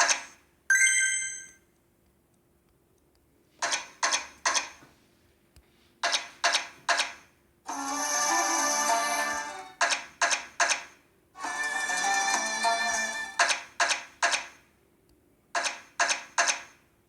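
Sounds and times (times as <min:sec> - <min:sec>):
slot machine chime: 0:00.7 - 0:01.6, 0:07.7 - 0:09.7, 0:11.4 - 0:13.4.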